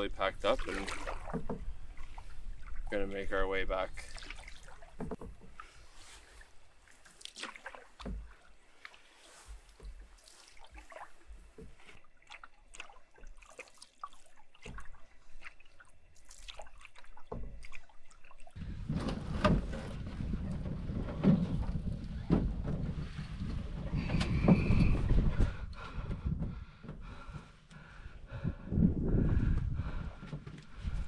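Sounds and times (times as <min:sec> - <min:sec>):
paddle strokes in water: 0:00.0 - 0:28.6
water dripping and splashing: 0:00.4 - 0:18.6
wind buffeting microphone: 0:18.6 - 0:31.0.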